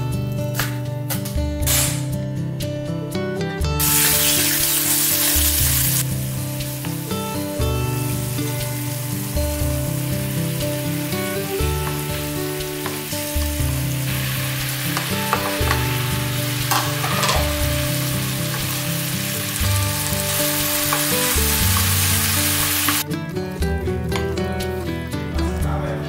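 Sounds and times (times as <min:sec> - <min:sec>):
sauce and eggplant sizzling in a pan: 0:03.8 - 0:23.0.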